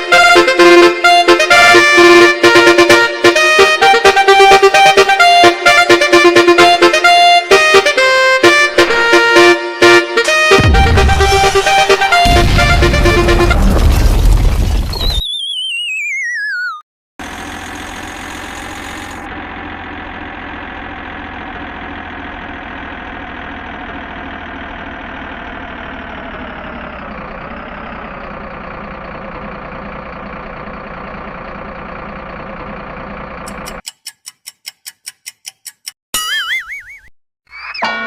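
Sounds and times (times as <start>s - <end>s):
vehicle engine running: 10.5s - 13.9s, 17.2s - 33.8s.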